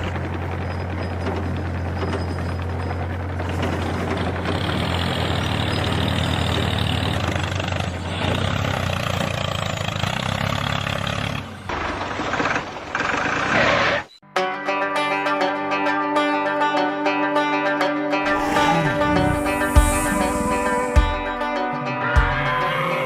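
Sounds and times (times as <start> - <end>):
plucked-string music: 14.2 - 23.0.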